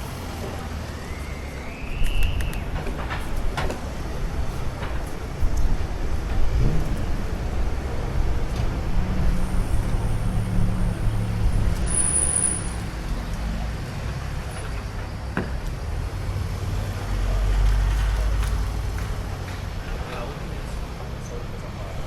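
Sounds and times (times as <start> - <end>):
traffic passing: 0.0 - 22.0
wind and road noise: 0.0 - 22.0.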